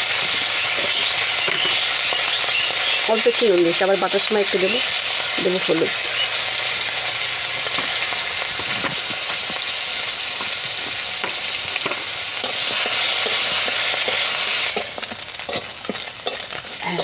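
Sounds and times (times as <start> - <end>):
food sizzling in hot oil: 0.0 - 17.0
oil popping and crackling: 0.0 - 17.0
metal spatula stirring in wok: 7.7 - 17.0.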